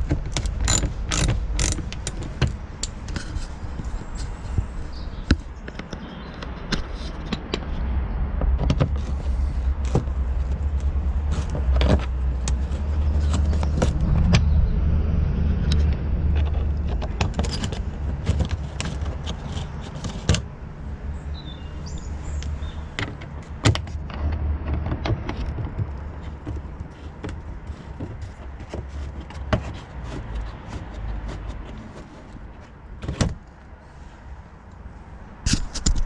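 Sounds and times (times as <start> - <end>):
clicks and knocks of hand tools: 0.0 - 7.8
low rumble: 12.4 - 16.9.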